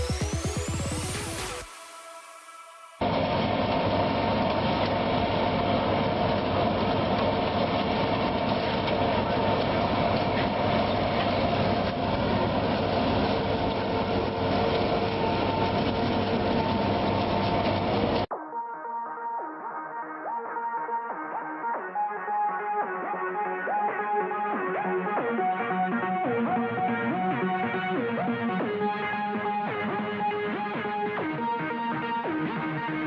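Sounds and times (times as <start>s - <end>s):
farm machinery running: 3.0s - 18.3s.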